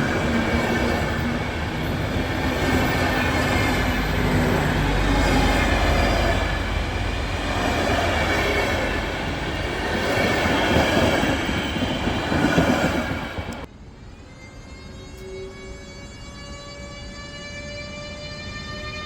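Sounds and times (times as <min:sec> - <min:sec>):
train wheels rumbling on rail: 0:00.0 - 0:13.7
high whine or squeal: 0:13.8 - 0:19.0.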